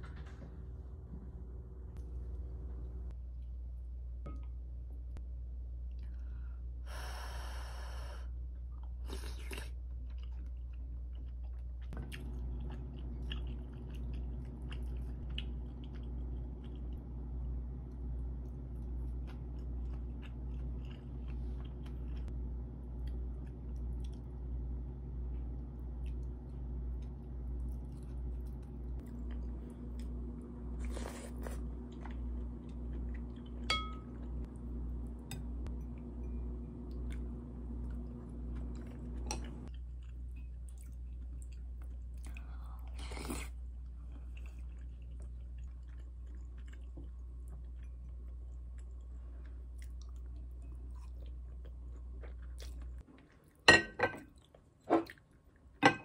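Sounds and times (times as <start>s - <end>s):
person chewing food: 8.8s - 17.0s, 17.9s - 22.4s, 23.0s - 24.4s, 25.8s - 53.6s
ceramic dishes clinking: 33.6s - 34.2s, 53.7s - 54.3s.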